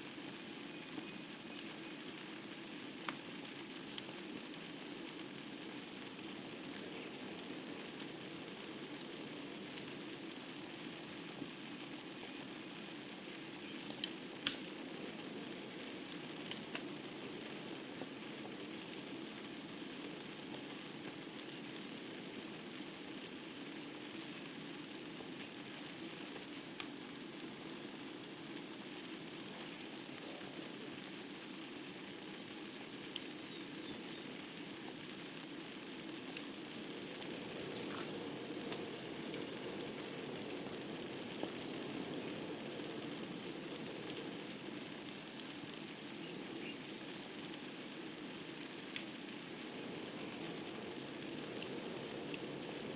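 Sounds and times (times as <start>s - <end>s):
wood fire crackling: 0.0s - 52.9s
sharp pops of burning logs: 3.0s - 4.2s, 13.6s - 14.8s.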